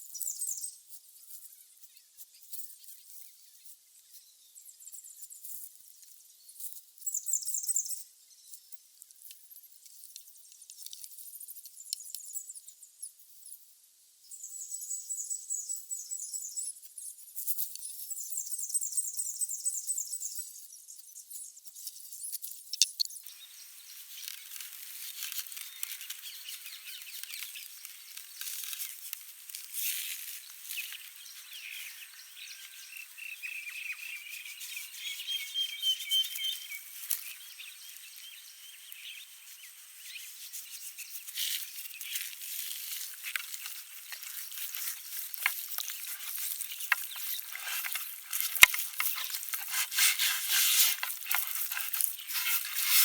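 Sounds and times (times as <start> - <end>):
small birds chirping: 0.0 - 0.8, 7.0 - 8.8, 14.2 - 53.0
light clicks and crackles: 9.0 - 12.3, 24.1 - 31.2, 41.3 - 53.0.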